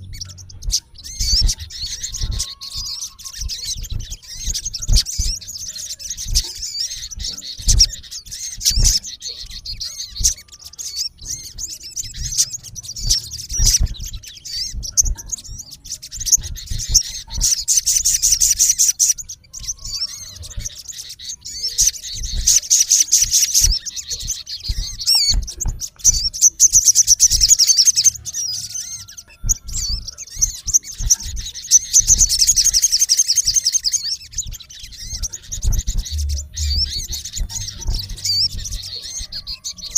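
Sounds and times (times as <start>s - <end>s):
low thumps: 0.0s - 10.4s, 34.3s - 39.5s
bird chirping: 0.0s - 39.9s
bird trilling: 0.0s - 39.9s.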